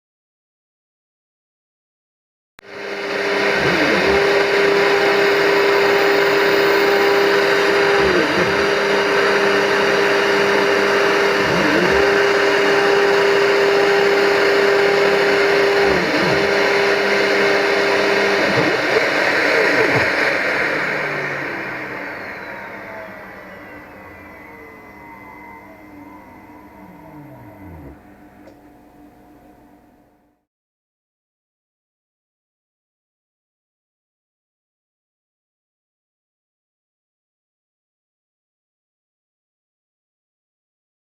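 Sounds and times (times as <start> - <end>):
machine tool running: 2.6 - 29.8.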